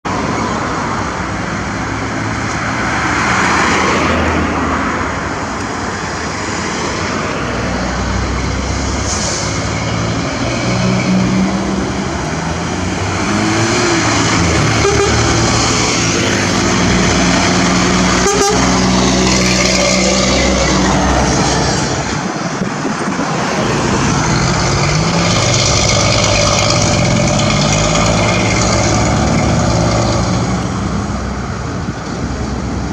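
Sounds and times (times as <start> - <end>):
vehicle engine revving: 10.2 - 22.1, 23.6 - 31.0.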